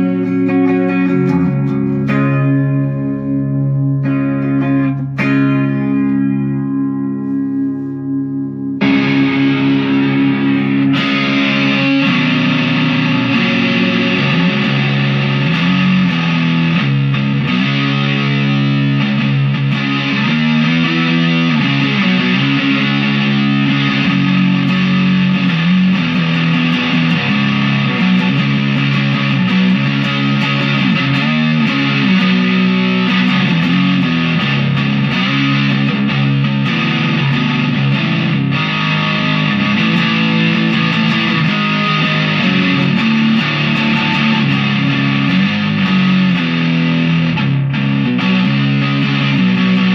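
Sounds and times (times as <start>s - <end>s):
distorted electric guitar: 0.0s - 49.9s.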